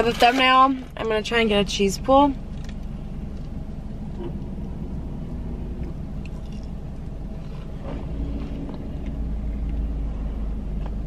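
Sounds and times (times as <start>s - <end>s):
car engine idling: 0.0s - 11.0s
chewing with small crackles: 2.5s - 9.9s.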